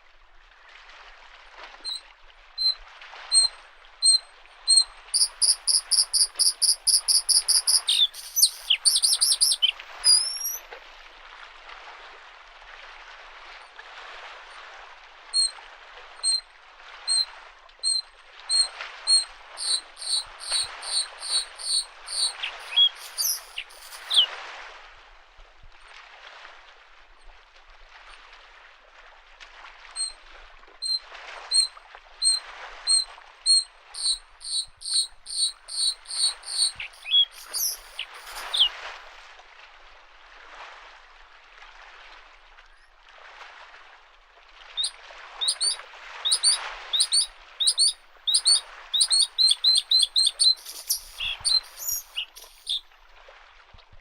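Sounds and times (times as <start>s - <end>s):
small waves washing on shore: 0.0s - 53.7s
bird singing: 3.4s - 10.6s, 17.1s - 24.3s, 30.8s - 38.7s, 44.8s - 52.8s.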